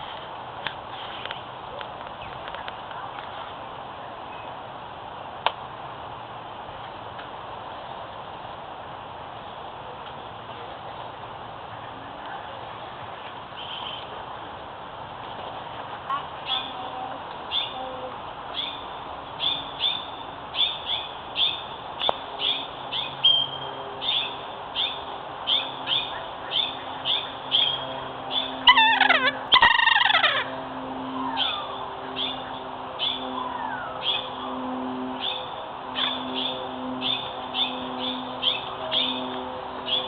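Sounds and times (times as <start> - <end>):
birds chirping: 16.4 - 30.6, 31.2 - 40.0
bird falling many-noted calls: 25.6 - 30.5.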